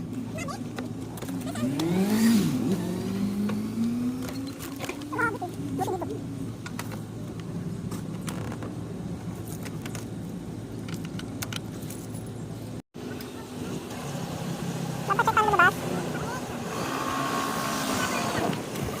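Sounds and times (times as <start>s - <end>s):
motorcycle engine running: 0.0s - 10.1s
road and wind noise: 0.0s - 19.0s
sharp clicks and rattles: 9.4s - 12.2s.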